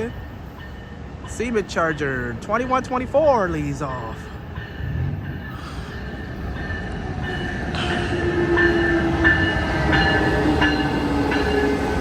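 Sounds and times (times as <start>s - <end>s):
locomotive whine: 4.0s - 12.0s.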